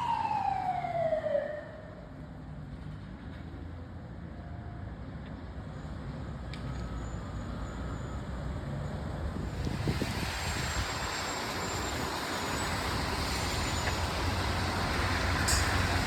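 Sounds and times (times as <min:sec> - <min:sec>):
emergency vehicle siren: 0:00.0 - 0:02.4, 0:09.6 - 0:16.0
heavy vehicle engine rumble: 0:00.0 - 0:16.0
road traffic: 0:00.0 - 0:16.0.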